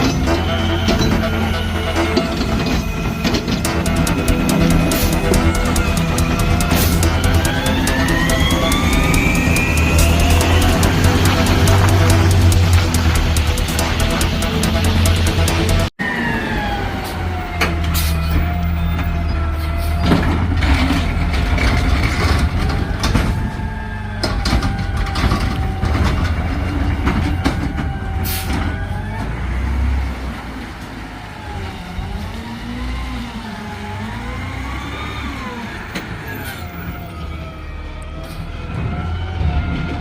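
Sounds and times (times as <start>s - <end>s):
sharp knocks and clanks: 0.0s - 15.9s
wavering whine: 0.0s - 17.4s
garbage truck engine running: 0.0s - 40.0s.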